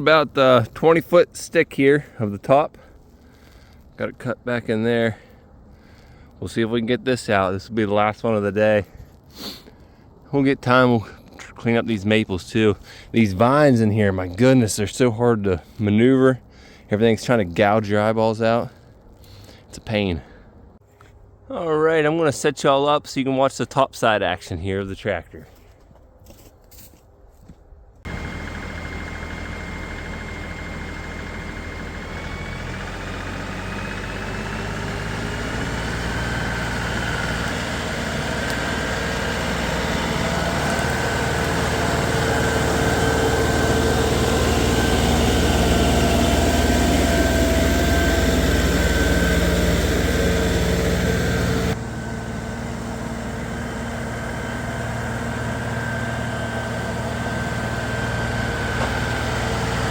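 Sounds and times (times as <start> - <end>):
tractor engine under load: 28.0 - 59.9.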